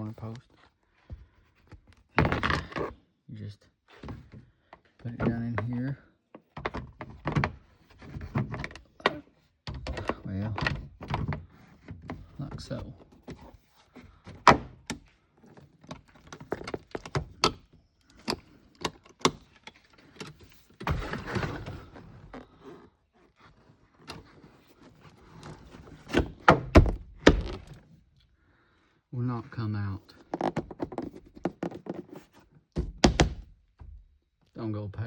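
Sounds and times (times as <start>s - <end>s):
plastic thunks: 1.1s - 3.0s, 14.1s - 15.1s, 25.3s - 27.8s, 32.7s - 34.1s
plastic trim knocking and clicking: 32.7s - 34.0s.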